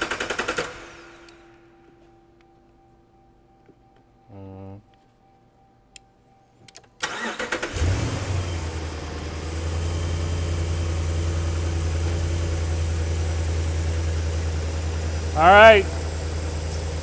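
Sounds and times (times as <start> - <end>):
car engine cranking and idling: 7.0 - 17.0.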